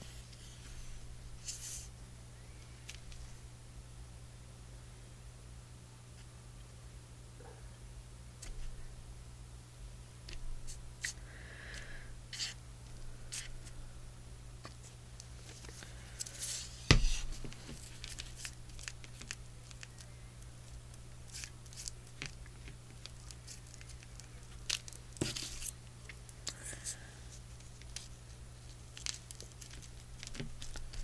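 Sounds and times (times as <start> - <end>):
faint hum: 0.0 - 31.0
paper rustling: 15.4 - 20.1, 21.3 - 26.2, 27.4 - 31.0.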